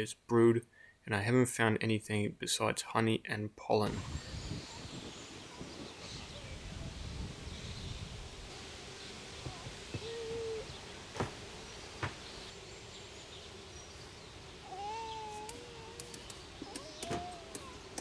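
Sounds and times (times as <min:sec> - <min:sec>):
bees buzzing: 0:08.4 - 0:18.0
sharp knocks of hive frames: 0:11.1 - 0:12.3, 0:15.4 - 0:18.0.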